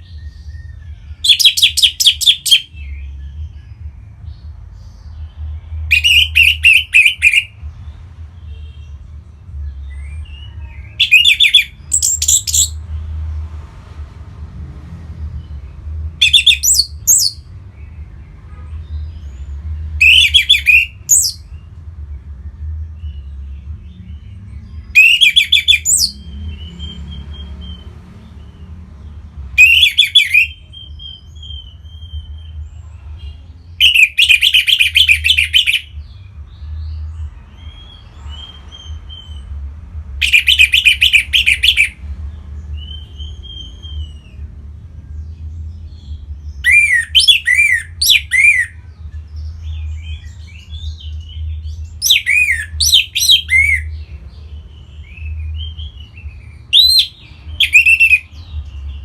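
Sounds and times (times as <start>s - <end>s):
thrush singing twittering phrases: 0.0s - 13.2s, 15.0s - 59.0s.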